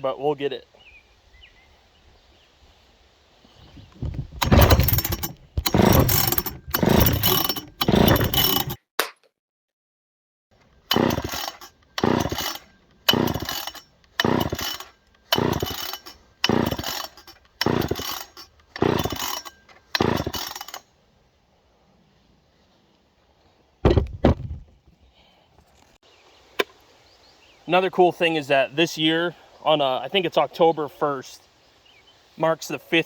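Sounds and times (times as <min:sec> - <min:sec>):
chainsaw recoil starter pulls: 0:04.0 - 0:08.8, 0:10.6 - 0:20.9
short knocks: 0:23.8 - 0:24.8.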